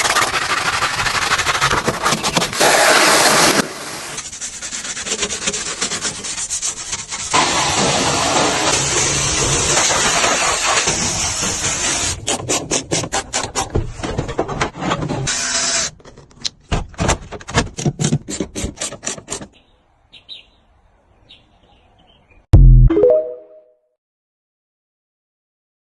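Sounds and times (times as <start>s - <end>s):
rubbing strokes on car: 0.0s - 13.6s.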